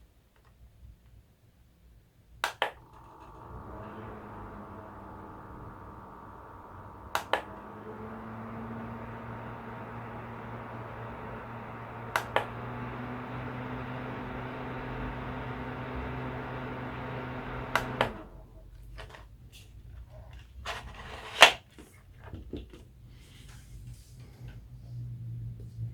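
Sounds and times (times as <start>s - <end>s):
small fan whooshing: 2.7s - 18.5s.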